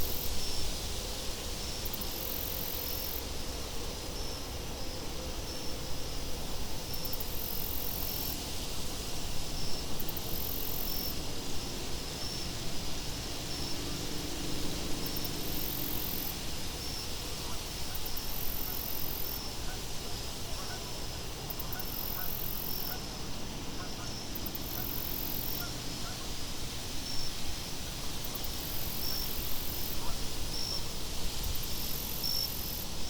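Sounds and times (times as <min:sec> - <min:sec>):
faint even insect chirping: 0:00.0 - 0:08.4, 0:09.4 - 0:13.9, 0:15.0 - 0:27.5
steady wind: 0:00.0 - 0:33.0
insect high pulsing trill: 0:01.6 - 0:08.4, 0:09.2 - 0:14.0, 0:14.7 - 0:27.4.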